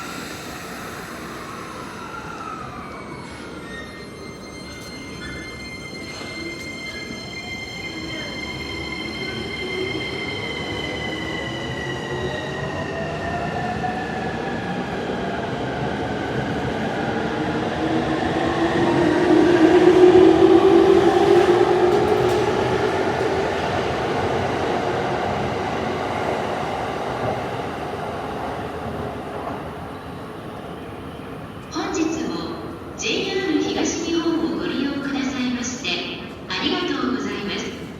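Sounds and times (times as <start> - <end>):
train cars rumbling on rails: 16.6 - 27.6.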